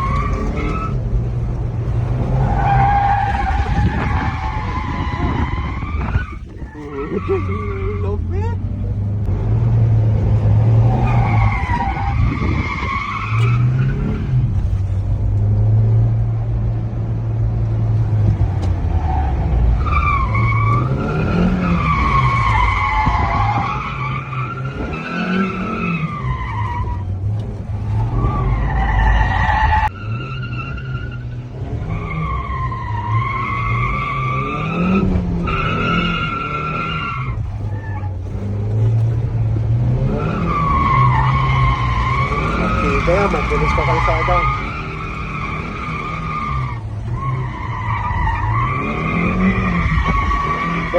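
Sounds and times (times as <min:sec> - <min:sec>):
tyre squeals: 0:00.0 - 0:01.1, 0:02.2 - 0:08.2, 0:18.9 - 0:39.0, 0:40.0 - 0:50.9.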